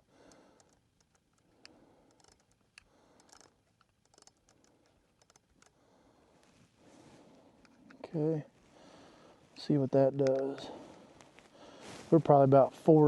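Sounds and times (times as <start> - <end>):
small handling clicks and taps: 0.2 - 5.8, 10.0 - 11.5.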